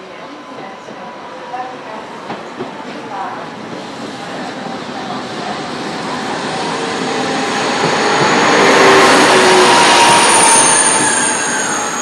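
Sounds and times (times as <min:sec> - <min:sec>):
high-speed train passing: 0:00.0 - 0:12.0
high squeal: 0:06.3 - 0:12.0.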